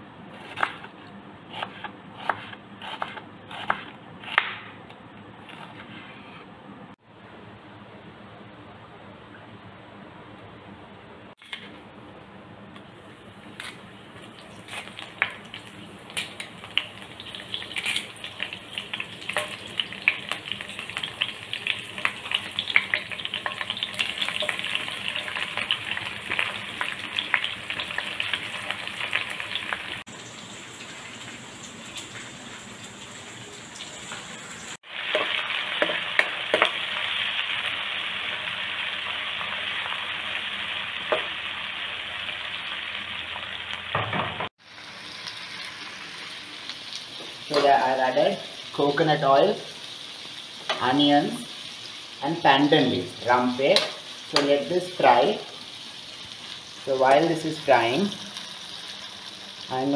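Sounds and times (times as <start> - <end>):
onions frying popping and sizzling: 13.2 - 59.9.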